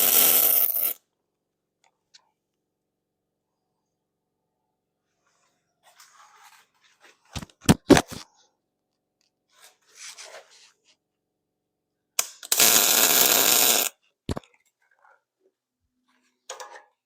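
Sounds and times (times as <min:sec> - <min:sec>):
electric welding crackle: 0:00.0 - 0:01.0, 0:12.4 - 0:14.0.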